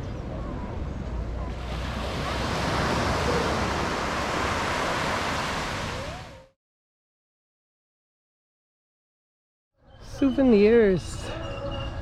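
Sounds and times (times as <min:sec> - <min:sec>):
waves breaking on a beach: 0:01.5 - 0:06.5.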